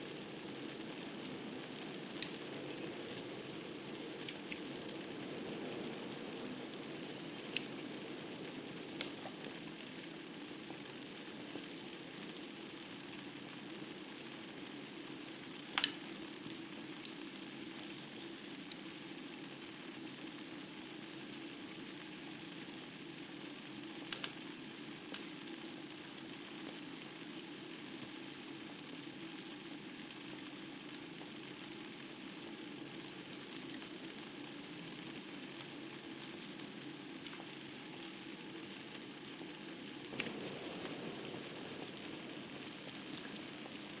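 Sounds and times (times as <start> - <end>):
wood fire crackling: 0.0 - 17.4, 24.0 - 25.4, 32.8 - 44.0.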